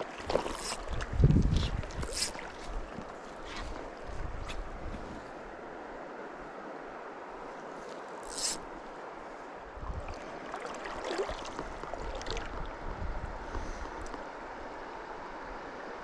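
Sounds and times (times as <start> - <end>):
water splashing: 0.0 - 4.0, 9.9 - 12.8
stream rushing over rocks: 8.0 - 12.9.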